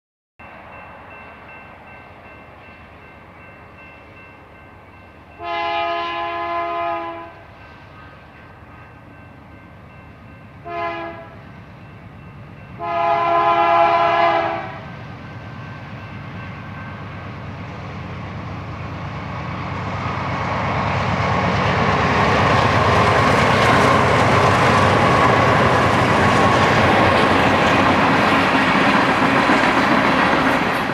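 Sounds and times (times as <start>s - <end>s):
train rumble: 0.4s - 30.9s
locomotive horn blasts: 5.4s - 7.4s, 10.6s - 11.4s, 12.8s - 14.9s
wheels on rails: 18.5s - 30.9s.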